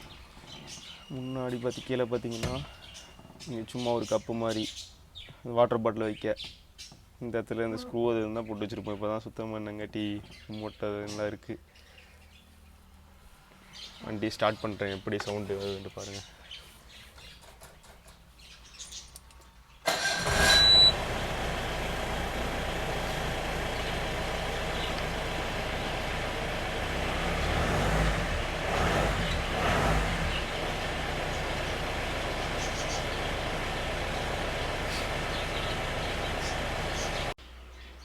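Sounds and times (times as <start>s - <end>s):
jeep engine starting and idling: 19.8s - 37.4s
engine revving: 19.9s - 37.4s.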